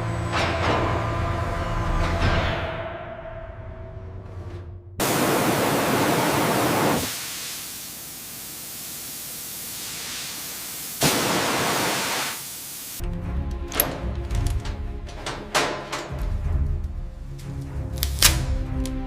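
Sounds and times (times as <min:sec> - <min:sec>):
loud hissing: 0:05.0 - 0:13.0.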